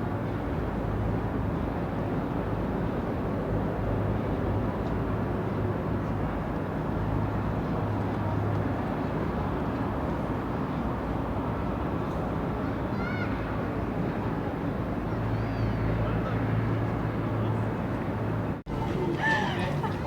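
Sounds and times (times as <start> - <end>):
traffic rumble: 7.2 - 20.0.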